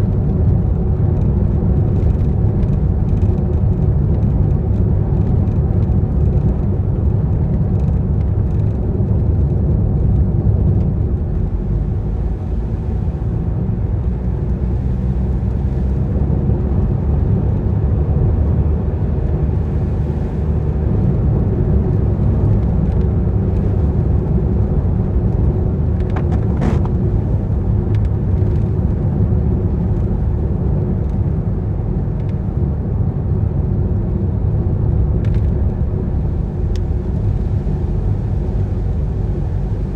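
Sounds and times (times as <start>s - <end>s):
car driving on wet road: 0.0s - 39.9s.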